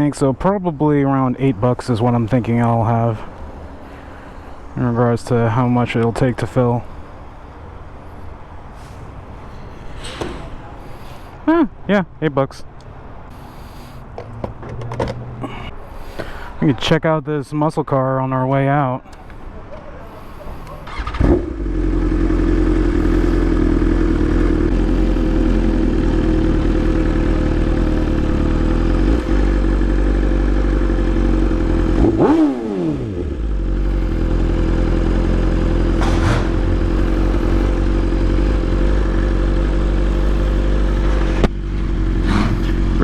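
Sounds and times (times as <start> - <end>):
motorcycle engine starting and running: 20.8 - 43.0.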